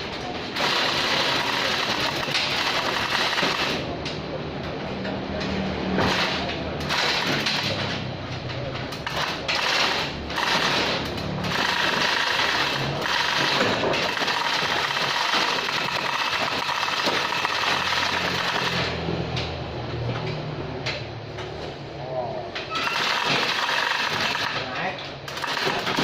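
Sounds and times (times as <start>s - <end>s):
power tool running: 9.5s - 19.0s, 22.7s - 24.6s.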